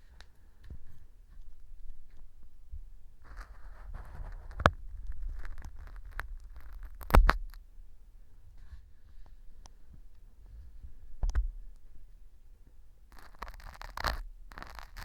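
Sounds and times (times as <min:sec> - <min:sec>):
earpick scraping crackling: 0:03.2 - 0:07.6, 0:13.1 - 0:15.0.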